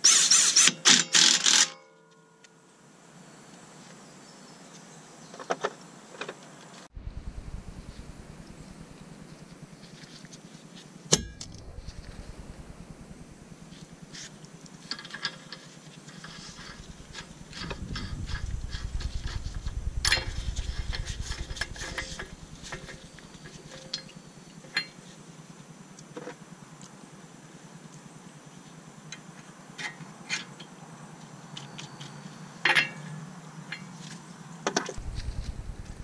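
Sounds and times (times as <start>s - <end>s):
low rumble: 6.9s - 9.9s, 11.2s - 14.2s, 16.5s - 23.6s, 35.0s - 36.0s.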